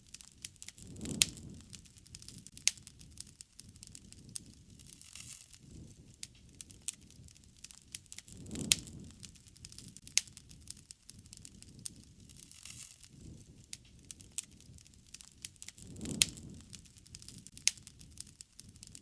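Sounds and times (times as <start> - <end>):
low fire rumble: 0.0 - 19.0
wood fire crackling and popping: 0.0 - 19.0.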